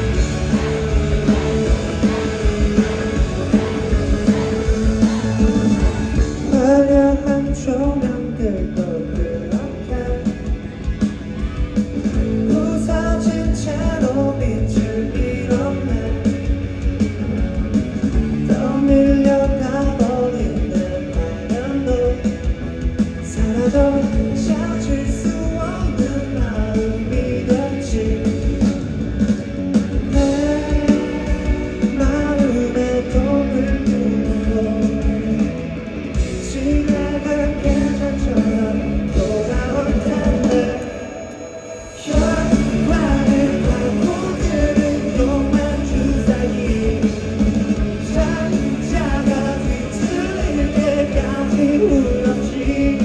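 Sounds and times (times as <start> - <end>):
person singing: 0.0 - 10.5, 36.4 - 53.0
bass guitar: 0.0 - 40.8, 42.1 - 53.0
drums: 0.0 - 53.0
electric guitar: 0.0 - 53.0.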